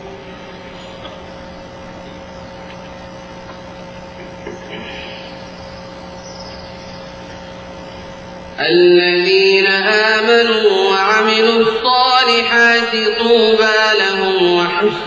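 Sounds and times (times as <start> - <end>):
sound system hum and hiss: 0.0 - 15.0.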